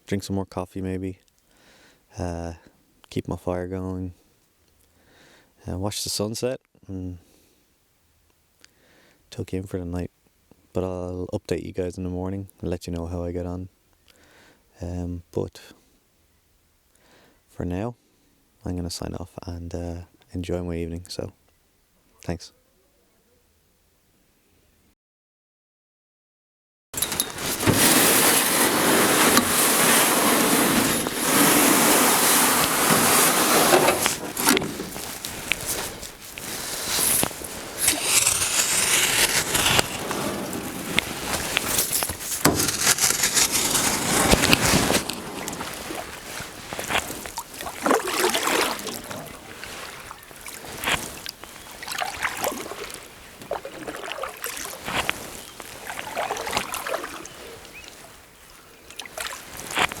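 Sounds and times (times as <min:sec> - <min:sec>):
water sloshing and splashing: 0:27.0 - 0:58.2, 0:58.9 - 1:00.0.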